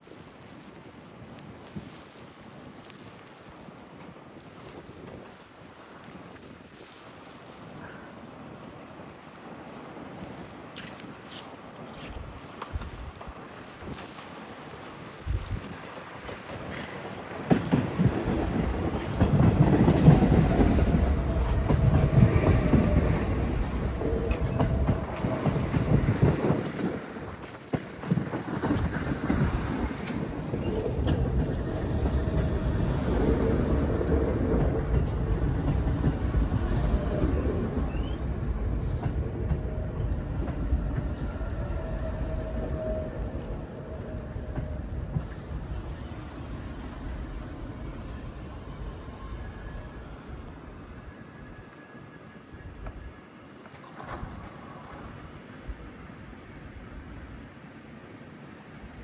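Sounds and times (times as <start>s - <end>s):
subway train running past: 7.7s - 59.0s
wheels clattering over rail joints: 11.9s - 51.9s.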